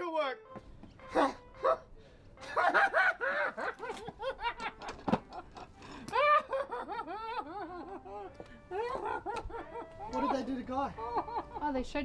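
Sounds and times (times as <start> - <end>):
person laughing: 2.4 - 11.7.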